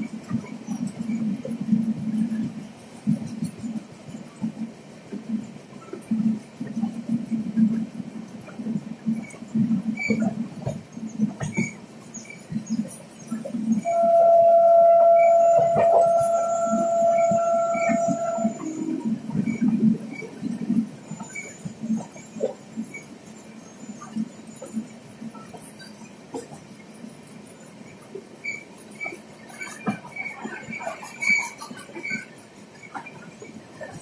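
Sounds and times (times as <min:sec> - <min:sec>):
train wheels clattering on rails: 0:00.0 - 0:34.0
train horn blast: 0:13.8 - 0:19.2.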